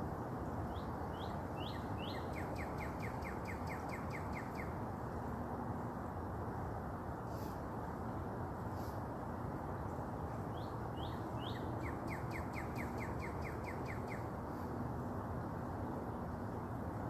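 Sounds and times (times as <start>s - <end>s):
songbird singing: 0.4s - 4.8s, 10.3s - 14.7s.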